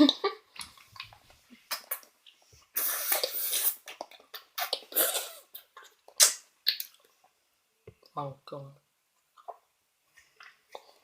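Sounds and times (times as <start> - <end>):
breathing and mouth noises: 0.6 - 7.2.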